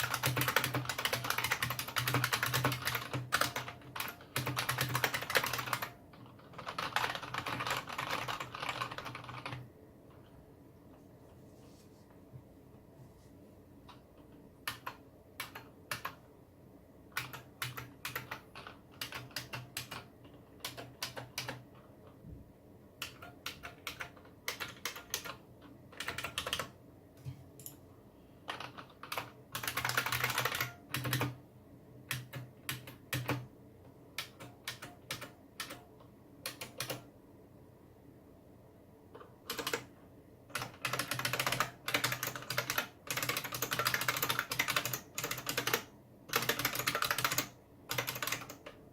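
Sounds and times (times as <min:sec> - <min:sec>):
keyboard typing: 0:00.0 - 0:09.7, 0:14.6 - 0:16.2, 0:17.1 - 0:21.8, 0:23.0 - 0:26.8, 0:28.4 - 0:31.4, 0:32.1 - 0:33.5, 0:34.2 - 0:37.1, 0:39.2 - 0:39.9, 0:40.5 - 0:48.8.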